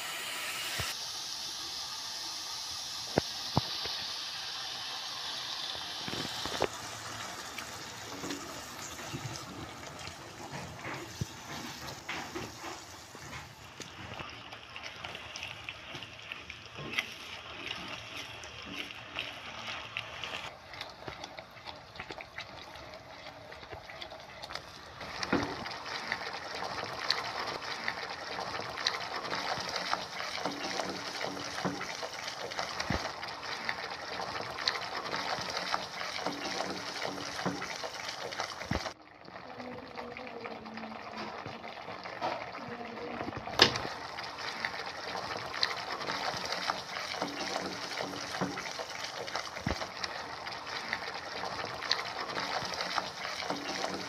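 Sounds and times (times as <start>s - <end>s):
paste sizzling in oil: 0.0s - 39.0s, 43.4s - 54.0s
spatula scraping pan: 6.0s - 20.6s.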